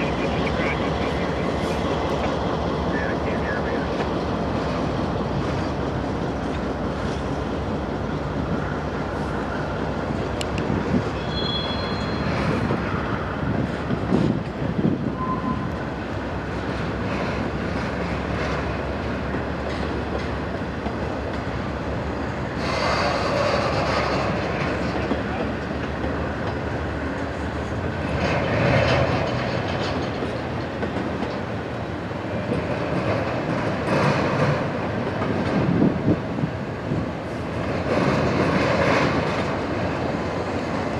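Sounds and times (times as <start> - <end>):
freight train rolling by: 0.0 - 40.9
high wheel squeals: 11.2 - 12.6, 15.2 - 15.7
steel wheels clacking over rails: 15.6 - 40.9.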